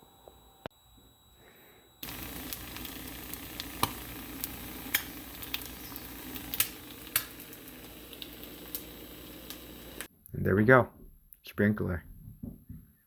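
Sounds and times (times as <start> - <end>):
droplets ticking: 2.0 - 10.1
water spraying from sprinkler: 2.0 - 10.1.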